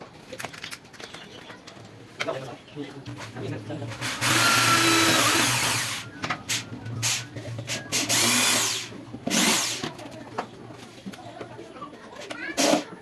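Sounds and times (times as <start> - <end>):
power drill bursts on wood: 4.0 - 7.2, 7.9 - 9.9.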